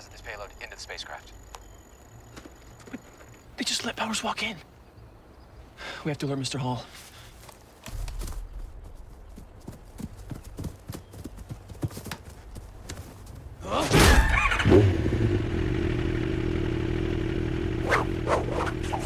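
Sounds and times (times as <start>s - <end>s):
light taps like footsteps: 7.3s - 13.5s
steady humming drone: 14.3s - 19.0s.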